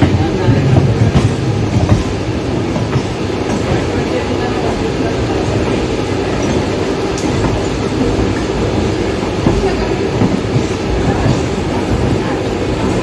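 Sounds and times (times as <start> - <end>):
train rumbling at speed: 0.0 - 13.0
wheels clacking over rails: 0.0 - 13.0.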